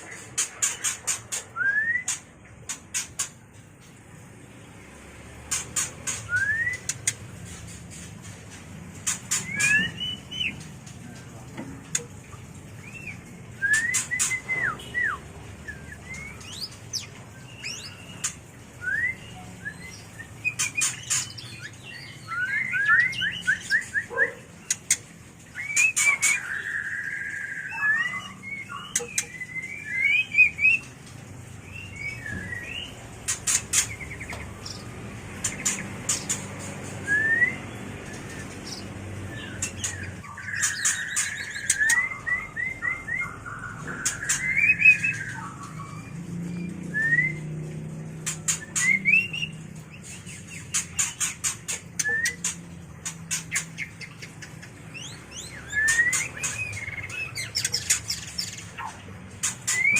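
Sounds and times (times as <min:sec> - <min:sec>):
bird whistled phrases: 0:06.1 - 0:07.0, 0:12.9 - 0:16.6, 0:18.8 - 0:21.0, 0:25.6 - 0:30.9, 0:37.0 - 0:38.4, 0:39.4 - 0:45.9, 0:52.0 - 0:52.5, 0:55.0 - 0:59.0
sharp clicking ticks: 0:24.7 - 0:25.0.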